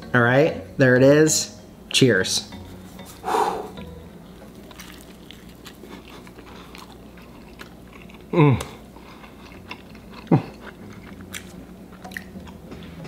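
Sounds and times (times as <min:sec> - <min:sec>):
man's pleased mm: 0:03.2 - 0:03.8
man chewing with faint crunches: 0:03.8 - 0:13.0.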